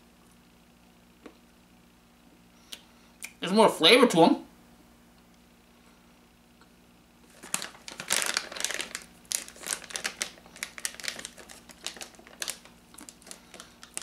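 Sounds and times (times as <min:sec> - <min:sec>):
person crunching a dog treat: 0:07.3 - 0:14.0.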